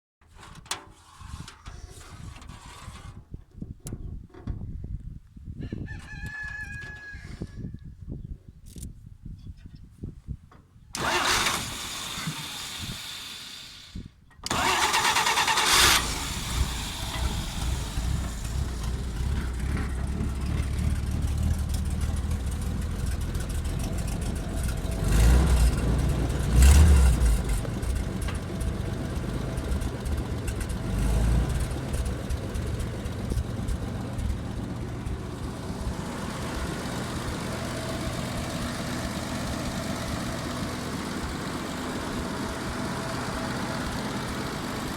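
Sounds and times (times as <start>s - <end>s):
starter motor cranking: 11.0s - 20.1s
engine idling: 11.0s - 44.9s
engine running smoothly: 11.0s - 44.9s
engine throttle blips: 11.0s - 44.9s.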